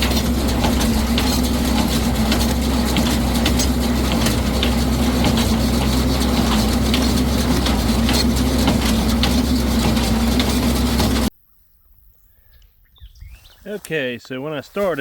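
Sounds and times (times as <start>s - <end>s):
baler mechanism clicks and knocks: 0.0s - 11.3s
tractor engine running: 0.0s - 11.3s.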